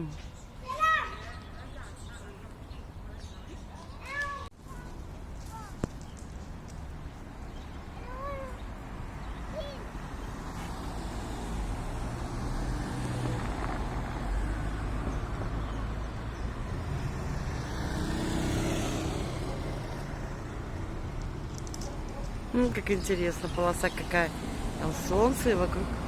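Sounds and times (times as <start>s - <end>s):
cars passing rumble: 0.0s - 26.0s.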